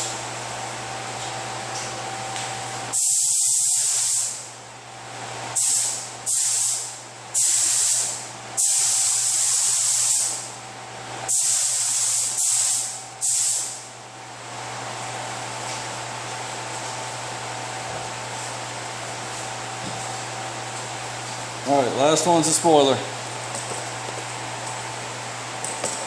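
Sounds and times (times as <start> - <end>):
spray gun hissing: 2.9 - 4.4, 5.6 - 10.4, 11.3 - 13.8.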